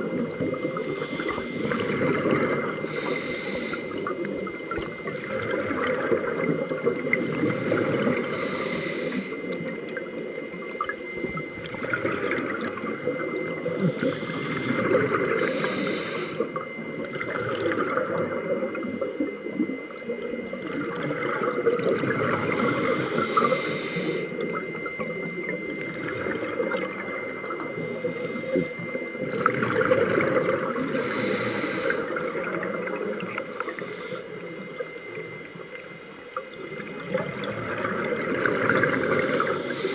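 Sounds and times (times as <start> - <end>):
rush of exhaled bubbles: 0.0 - 9.7, 10.8 - 15.6, 16.5 - 19.6, 20.5 - 23.7, 29.2 - 33.8, 36.7 - 39.9
thin steady tone: 0.0 - 39.9
diver breathing through regulator: 0.6 - 4.3, 7.0 - 9.7, 13.6 - 16.8, 22.2 - 24.5, 27.8 - 29.0, 30.8 - 34.4, 38.8 - 39.9.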